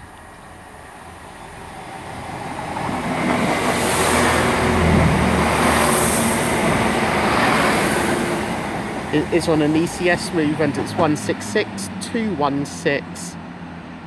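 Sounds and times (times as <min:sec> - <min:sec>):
wheels hissing on rails: 0:00.0 - 0:13.0
diesel train passing: 0:00.0 - 0:14.0.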